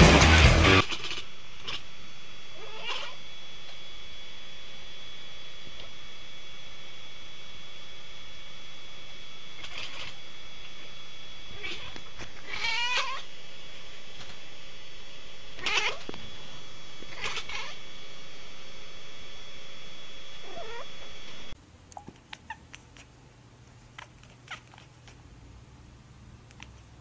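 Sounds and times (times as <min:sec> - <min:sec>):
cat meowing loudly: 0:02.5 - 0:03.2, 0:11.5 - 0:13.3, 0:15.6 - 0:16.2, 0:17.1 - 0:17.8, 0:20.4 - 0:21.1
faint clicks: 0:26.4 - 0:26.9.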